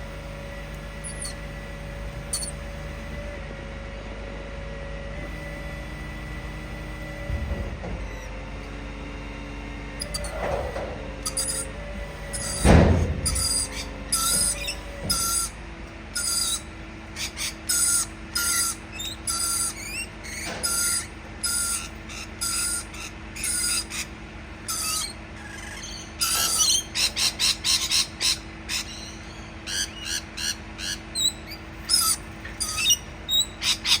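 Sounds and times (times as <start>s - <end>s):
parrot screeching and chattering: 1.0s - 1.4s, 2.3s - 2.6s, 10.0s - 10.4s, 11.2s - 11.7s, 12.3s - 12.6s, 13.2s - 15.5s, 16.2s - 34.0s.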